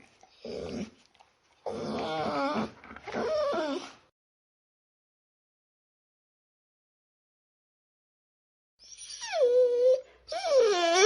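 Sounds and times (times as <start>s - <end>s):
dog whining and whimpering: 1.6s - 4.1s, 8.8s - 11.0s.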